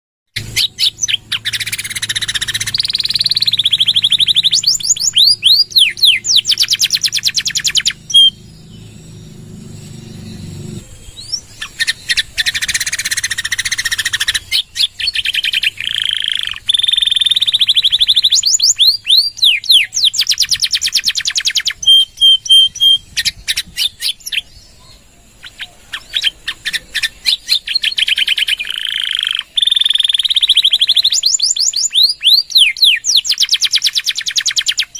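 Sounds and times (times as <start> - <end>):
canary singing trills: 0.4 - 34.9
low hum: 1.2 - 14.5.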